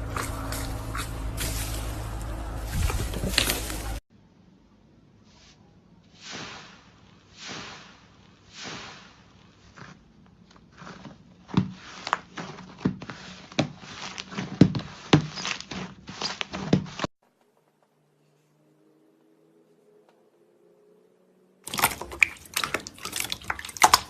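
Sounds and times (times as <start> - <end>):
slime squelching: 0.0 - 4.0, 6.2 - 17.1, 21.6 - 24.0.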